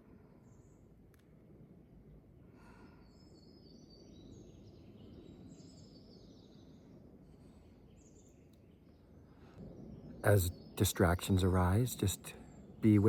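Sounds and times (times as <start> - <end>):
faint birdsong chirps and whistles: 0.0 - 1.1, 2.6 - 13.0
low steady outdoor rumble: 6.3 - 13.0.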